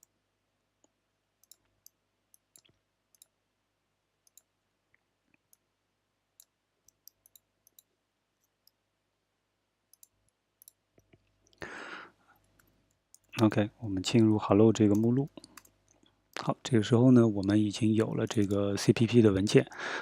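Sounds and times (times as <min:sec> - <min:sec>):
computer keys and mouse clicking: 0:00.8 - 0:03.4, 0:04.2 - 0:04.5, 0:06.4 - 0:08.8, 0:09.9 - 0:11.6, 0:12.4 - 0:16.5, 0:17.4 - 0:18.8.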